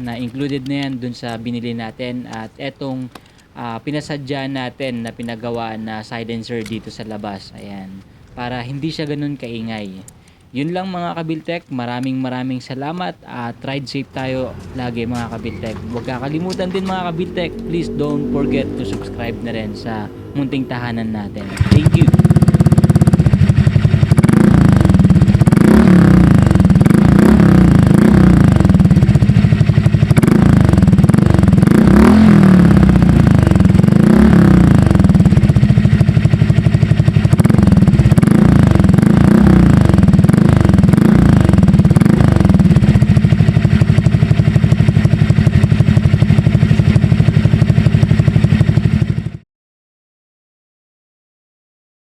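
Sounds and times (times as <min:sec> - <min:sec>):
scooter engine revving: 0:14.2 - 0:49.4.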